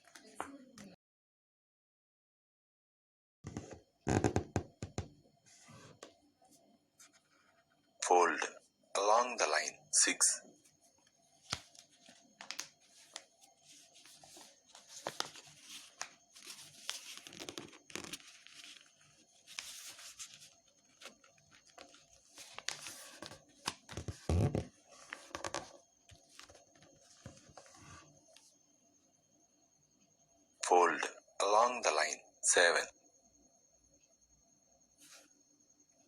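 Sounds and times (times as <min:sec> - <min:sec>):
paper being folded and creased: 0:11.4 - 0:28.1.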